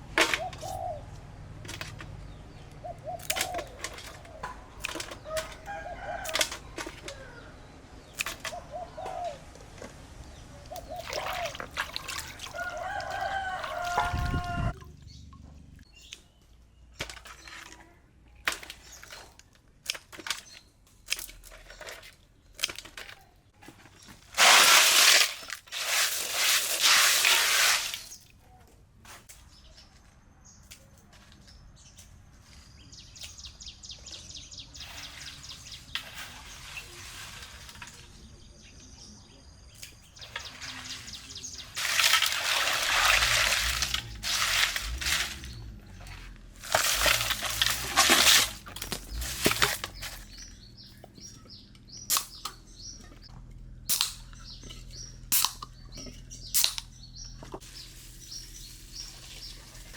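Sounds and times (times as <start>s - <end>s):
water pouring or splashing: 10.8s - 15.8s, 40.2s - 45.6s.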